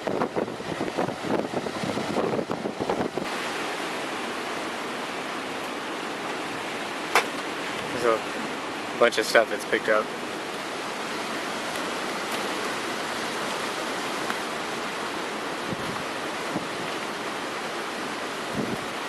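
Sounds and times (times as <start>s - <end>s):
storm wind and rain rushing: 0.0s - 19.0s.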